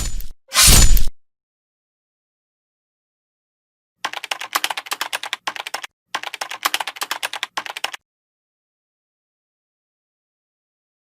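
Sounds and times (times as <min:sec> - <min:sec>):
keyboard typing clicks: 0:04.0 - 0:08.0.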